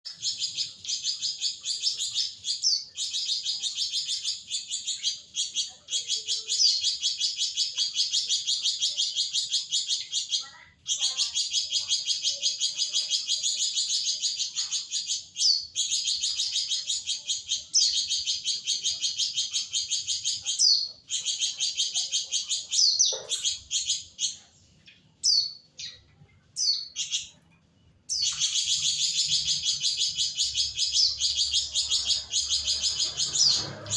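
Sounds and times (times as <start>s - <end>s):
songbird chattering trill: 0.1s - 27.4s, 28.0s - 33.9s.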